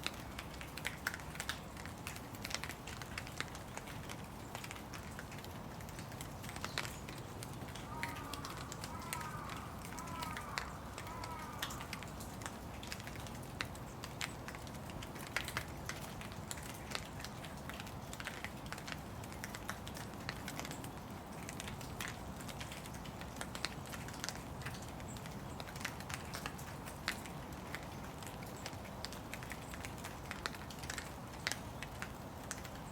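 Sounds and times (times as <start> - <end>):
rain falling: 0.0 - 32.9.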